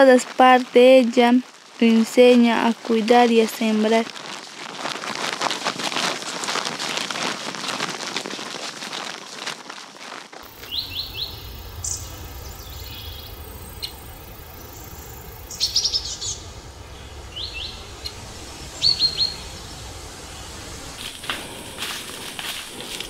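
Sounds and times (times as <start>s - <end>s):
rain pattering: 0.0s - 23.0s
small birds chirping: 10.4s - 23.0s.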